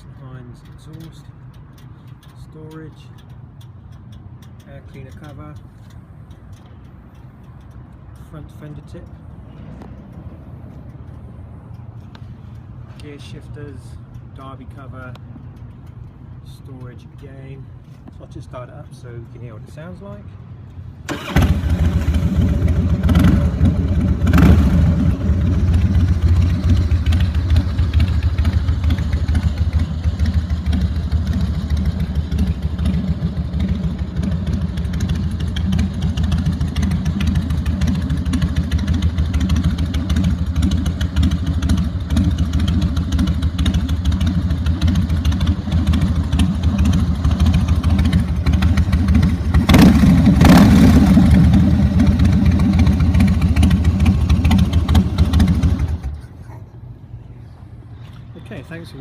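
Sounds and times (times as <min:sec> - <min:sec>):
motorcycle engine idling: 0:21.1 - 0:56.2.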